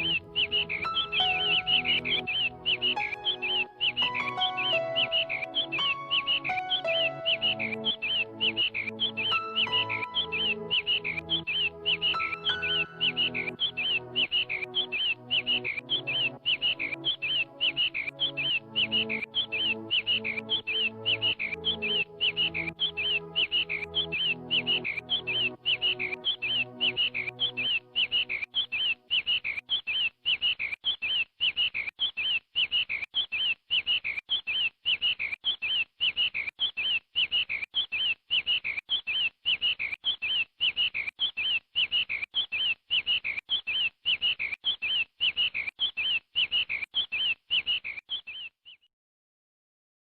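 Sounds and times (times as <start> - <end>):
small bird chirping: 0.0 - 48.9.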